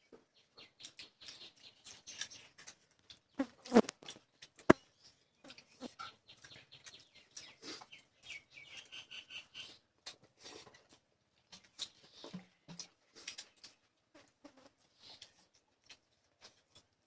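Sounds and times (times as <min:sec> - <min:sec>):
chewing and mouth smacks: 0:00.8 - 0:04.8, 0:05.5 - 0:08.0, 0:10.0 - 0:13.9, 0:15.0 - 0:16.9.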